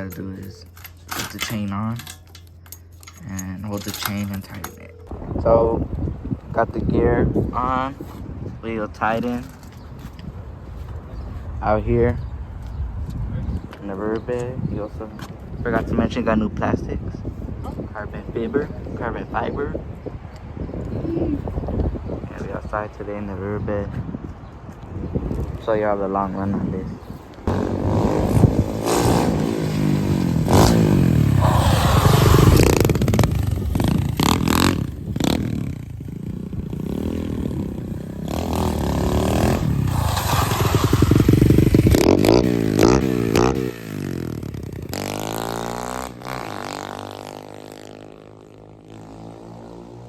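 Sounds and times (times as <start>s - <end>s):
pit bike engine revving: 27.4s - 50.0s.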